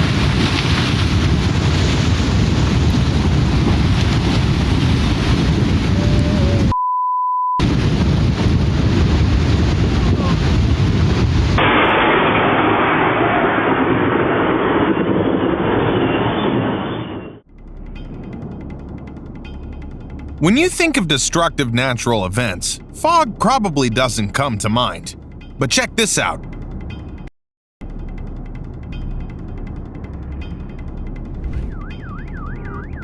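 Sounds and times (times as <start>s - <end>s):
censor bleep: 6.7s - 7.6s
steady rushing roar: 27.8s - 33.0s.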